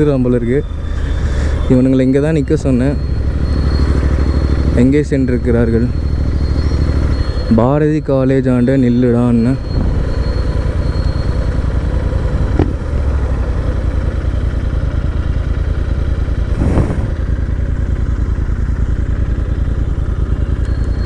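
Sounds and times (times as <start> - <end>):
motorcycle engine running: 3.0 - 21.0
short knocks: 12.5 - 13.0.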